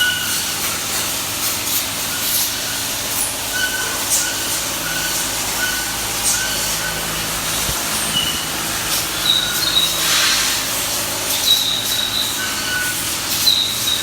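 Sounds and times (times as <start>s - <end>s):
diesel engine running: 0.4s - 14.0s
short high squeaks: 2.2s - 14.0s
hiss: 4.0s - 14.0s.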